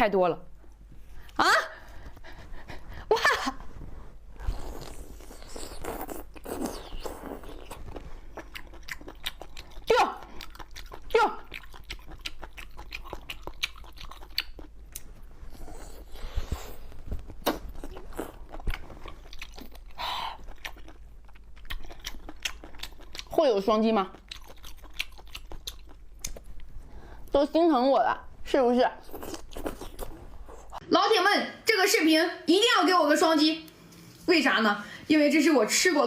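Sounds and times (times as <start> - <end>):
biting and chewing food: 4.5 - 26.8, 29.0 - 30.8.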